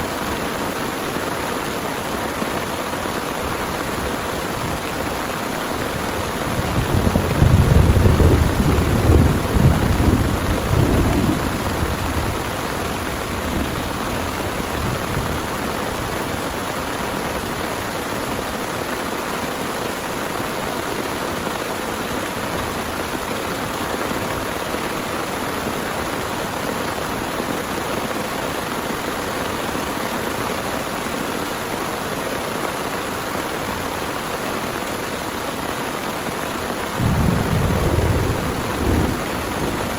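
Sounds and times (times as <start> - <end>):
heavy rain falling: 0.0 - 39.9
loud rumble of thunder: 6.1 - 16.3, 37.0 - 39.9.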